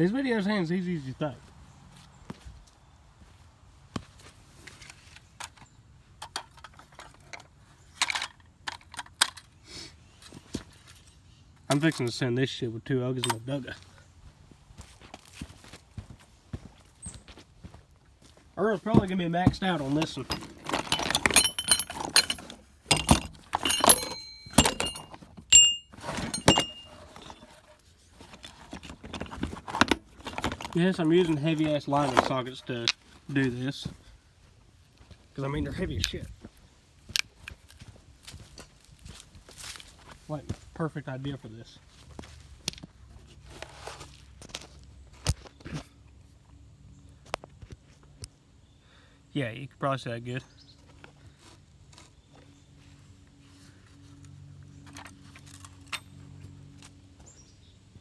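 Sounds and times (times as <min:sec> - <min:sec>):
small metal objects clinking: 0:19.8 - 0:27.6, 0:29.8 - 0:33.8, 0:34.7 - 0:37.9, 0:42.7 - 0:42.9.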